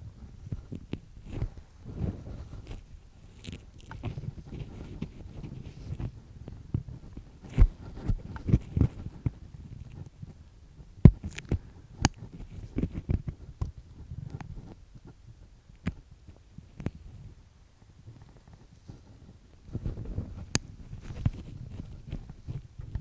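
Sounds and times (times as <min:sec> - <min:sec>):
earpick scraping in ear: 0:00.4 - 0:10.1, 0:18.2 - 0:23.0.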